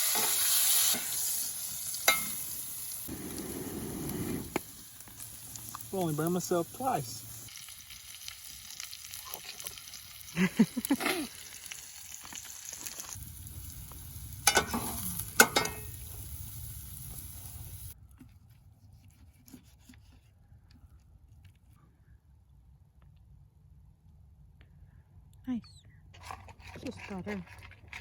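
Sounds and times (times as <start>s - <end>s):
food sizzling in a pan: 0.0s - 18.0s
utensil scraping and knocking pan: 14.5s - 16.0s.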